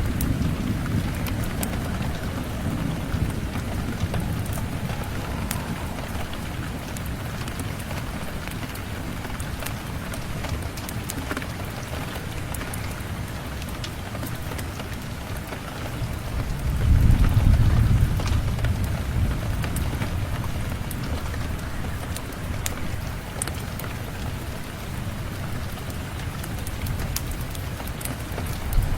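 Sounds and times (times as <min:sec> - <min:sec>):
low roll of thunder: 0:00.0 - 0:13.6, 0:14.4 - 0:23.4, 0:26.4 - 0:28.9
steady rain: 0:00.0 - 0:28.9.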